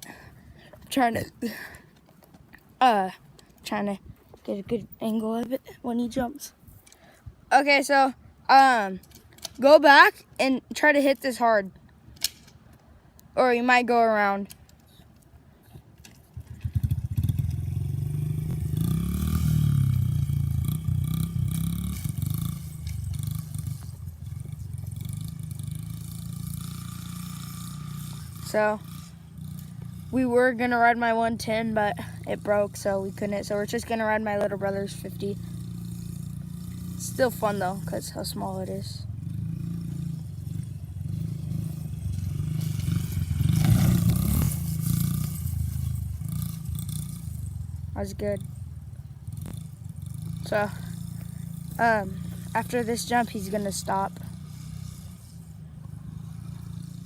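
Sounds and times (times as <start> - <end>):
dirt bike engine revving: 16.4 - 57.0.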